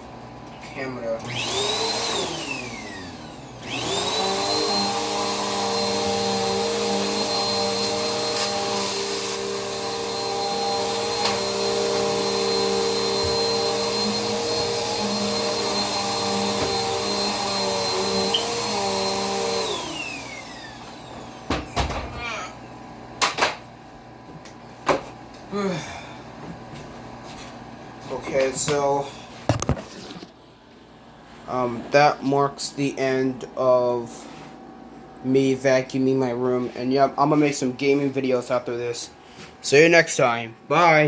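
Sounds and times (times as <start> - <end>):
vacuum cleaner motor whine: 0.9 - 22.4.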